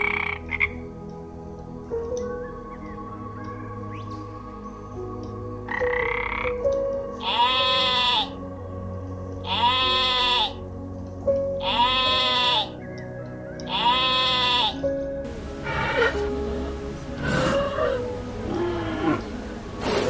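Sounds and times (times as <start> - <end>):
soft background music: 0.0 - 20.0
animal calling: 7.2 - 8.4, 9.5 - 10.6, 11.6 - 12.8, 13.6 - 20.0.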